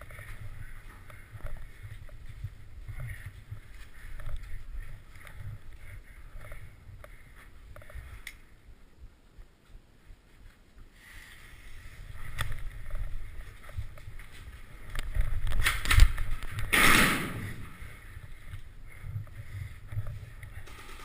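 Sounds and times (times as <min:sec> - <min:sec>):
camera handling rumble: 0:12.3 - 0:16.7.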